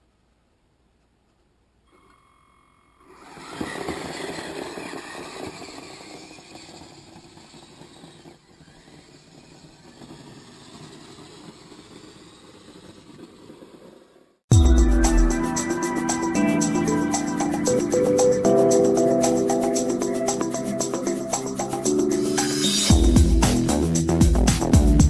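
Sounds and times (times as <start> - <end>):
toy snow vehicle motor and tracks: 3.1 - 14.4.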